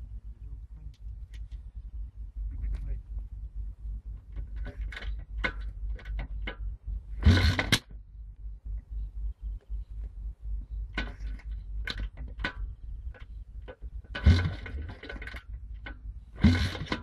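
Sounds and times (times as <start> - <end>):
wind rumbling on microphone: 0.0 - 17.0
motorcycle engine starting: 4.1 - 8.0, 10.8 - 17.0.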